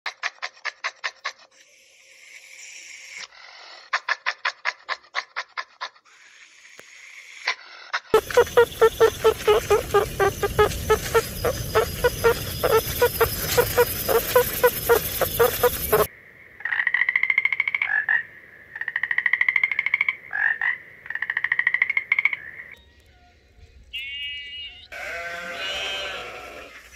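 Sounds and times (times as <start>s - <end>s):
frog pulsed trills: 8.2s - 16.1s
meerkat chirping: 8.2s - 16.1s.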